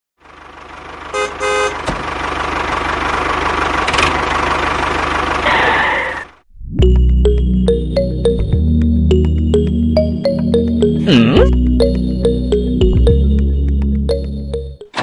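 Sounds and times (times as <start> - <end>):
vehicle engine running: 0.2 - 15.0
short horn toots: 1.2 - 1.8.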